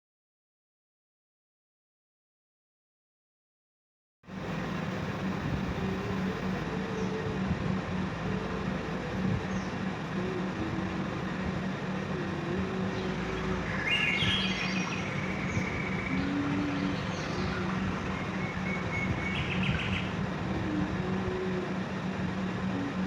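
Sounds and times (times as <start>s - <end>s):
low hum: 4.3s - 23.0s
steady background noise: 4.3s - 23.0s
bird chirping: 9.4s - 10.8s, 12.2s - 20.2s.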